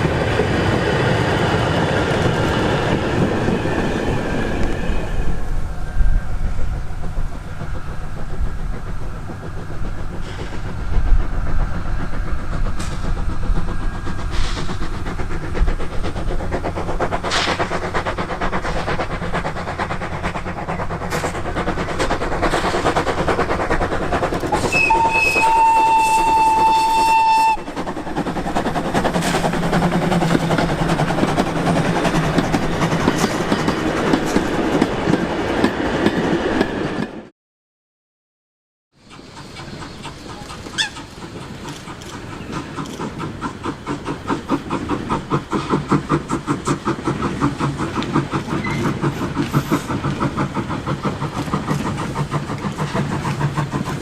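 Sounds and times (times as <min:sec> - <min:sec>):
train wheels clicking on rails: 0:00.0 - 0:37.3, 0:39.0 - 0:54.0
steam whistle blast: 0:24.7 - 0:27.7.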